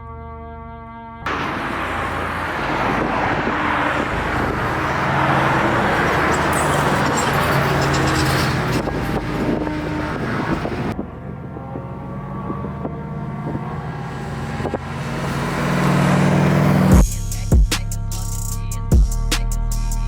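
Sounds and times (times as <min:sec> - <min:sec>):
wind and tyre rushing: 0:01.3 - 0:17.0
car engine running: 0:01.3 - 0:17.1.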